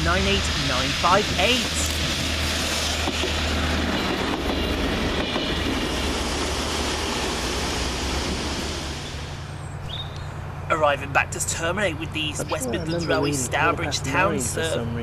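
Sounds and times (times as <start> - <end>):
train wheels on rails: 0.0 - 9.6
train engine humming: 0.0 - 15.0.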